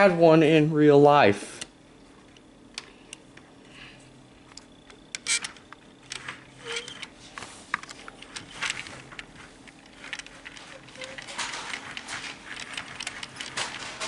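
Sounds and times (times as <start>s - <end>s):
faint steady hum: 0.0s - 14.0s
model train wheels clicking: 7.7s - 14.0s.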